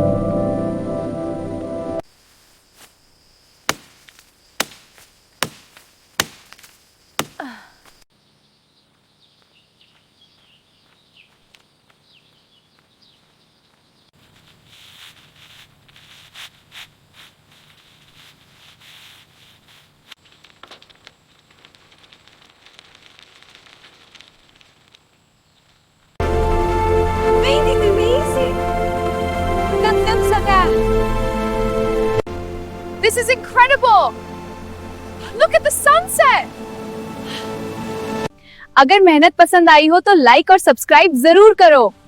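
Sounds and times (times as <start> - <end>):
leaves rustling: 2.0 - 8.0, 8.9 - 38.6
blade striking palm fronds: 2.4 - 8.0, 14.2 - 25.8.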